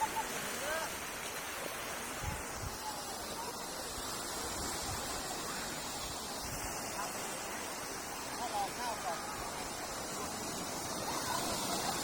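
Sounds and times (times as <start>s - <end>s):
sea surf washing: 0.0s - 12.0s
wind noise on microphone: 2.0s - 2.9s.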